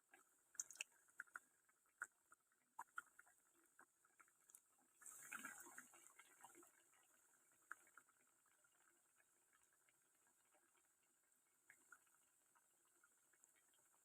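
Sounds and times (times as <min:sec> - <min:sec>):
faint clicks: 0:00.1 - 0:04.6.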